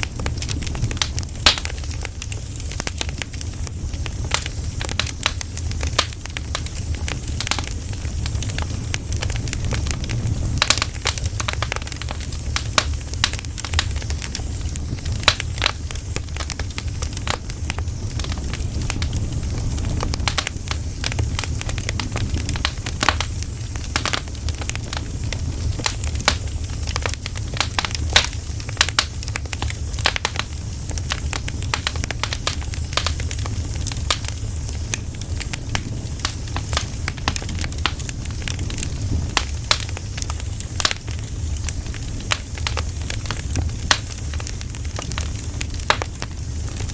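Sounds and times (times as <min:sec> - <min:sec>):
wood fire crackling and popping: 0:00.0 - 0:46.9
low rumble: 0:02.0 - 0:27.9.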